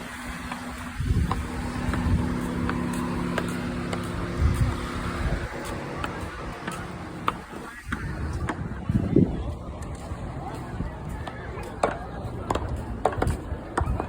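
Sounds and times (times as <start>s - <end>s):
engine humming: 0.0s - 14.0s
outdoor background noise: 0.0s - 14.0s.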